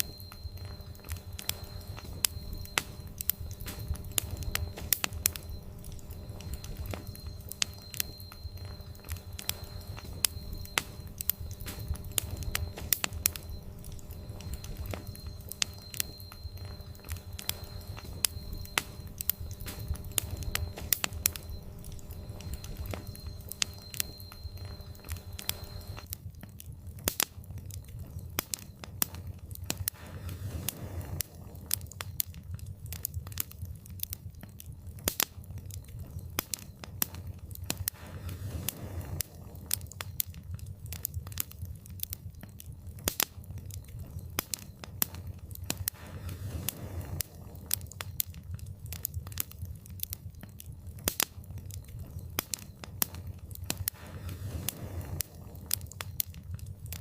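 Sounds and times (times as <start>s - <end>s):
sharp pops and snaps: 0.0s - 57.0s
wood fire crackling: 0.0s - 57.0s.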